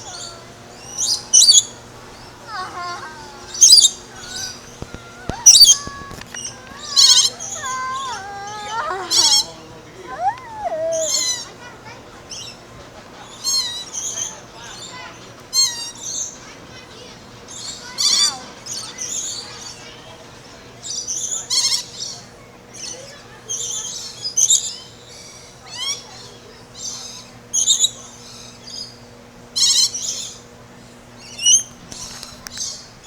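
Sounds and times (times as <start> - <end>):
songbirds chirping and trilling: 0.0 - 12.6.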